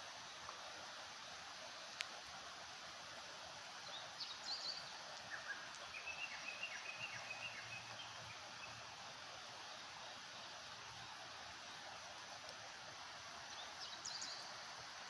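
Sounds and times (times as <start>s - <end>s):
steady hiss: 0.0s - 15.0s
small birds chirping: 3.8s - 8.8s, 13.4s - 14.8s.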